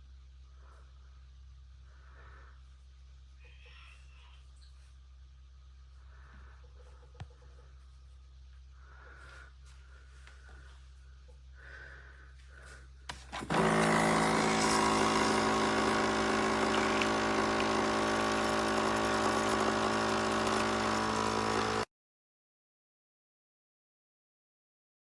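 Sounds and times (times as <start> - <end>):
coffee machine pump buzzing: 13.1 - 21.9.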